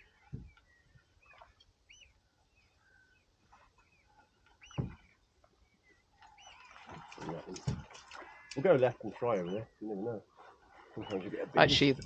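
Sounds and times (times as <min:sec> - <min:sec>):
faint bird chirps: 0:00.0 - 0:07.4, 0:08.2 - 0:11.5
dull knocks: 0:04.8 - 0:05.0.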